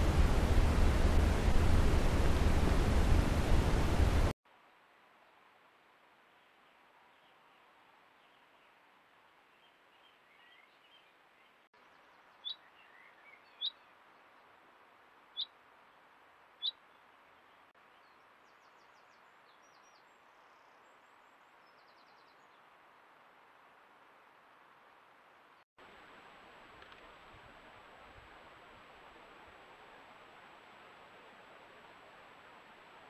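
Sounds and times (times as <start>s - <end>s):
faint steady hiss: 0.0s - 33.0s
bird chirping: 9.5s - 13.9s.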